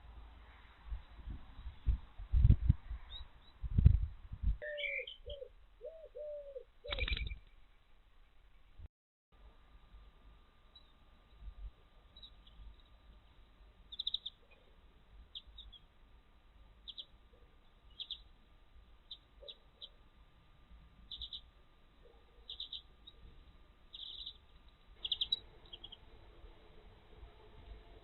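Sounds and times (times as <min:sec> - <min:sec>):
faint steady hum: 0:00.0 - 0:28.0
small songbird chirping: 0:04.6 - 0:07.8, 0:10.7 - 0:11.5, 0:12.1 - 0:13.2, 0:13.9 - 0:16.0, 0:16.8 - 0:18.4, 0:19.0 - 0:20.1, 0:21.0 - 0:26.2.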